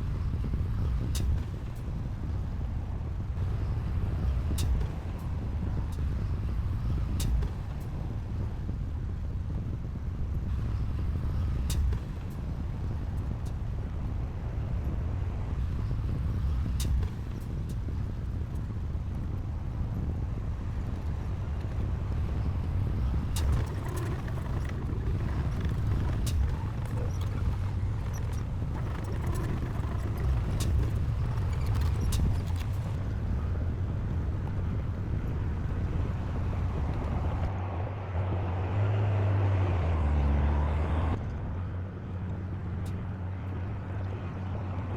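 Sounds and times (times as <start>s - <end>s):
diesel engine low rumble: 0.0s - 44.9s
sharp clicks and clanks: 23.2s - 33.0s.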